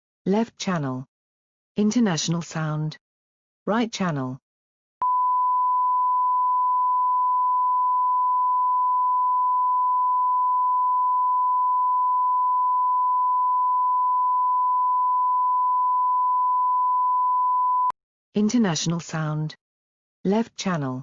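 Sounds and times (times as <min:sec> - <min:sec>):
steady sine tone beep: 0:05.0 - 0:18.0.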